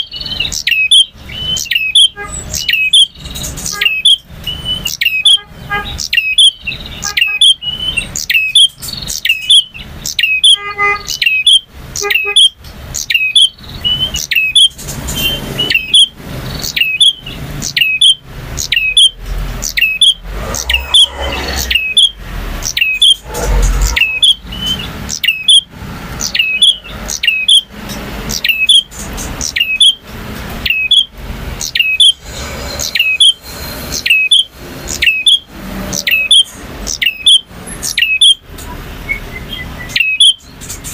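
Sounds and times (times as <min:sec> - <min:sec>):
bird singing sharp chirps: 0:00.0 - 0:27.7
low rumble: 0:19.2 - 0:25.0.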